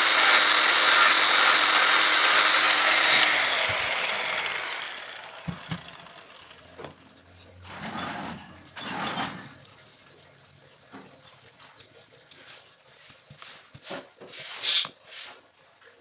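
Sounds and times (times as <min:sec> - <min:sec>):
tool scraping bamboo: 0:07.7 - 0:15.5.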